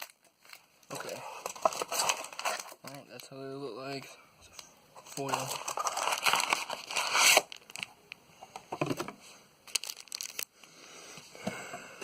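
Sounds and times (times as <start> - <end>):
foil wrappers crinkling: 0.0 - 3.4, 5.0 - 7.9, 9.6 - 10.5.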